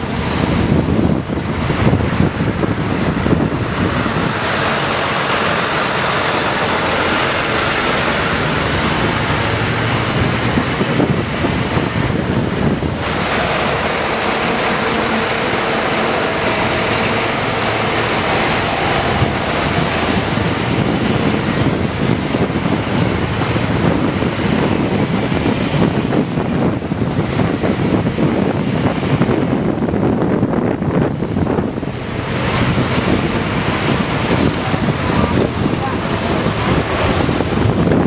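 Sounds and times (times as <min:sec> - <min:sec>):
coach engine rumble: 0:00.0 - 0:38.0
road noise: 0:00.0 - 0:38.0
wind noise: 0:00.0 - 0:38.0.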